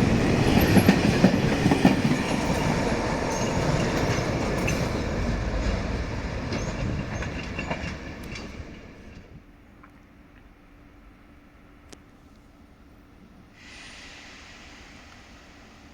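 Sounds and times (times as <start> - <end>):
train wheels rumbling on rails: 0.0 - 9.6.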